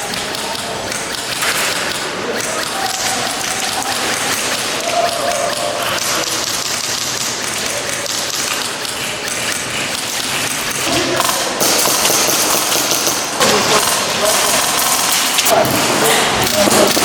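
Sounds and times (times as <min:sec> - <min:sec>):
airsoft guns firing full-auto: 0:10.3 - 0:17.0.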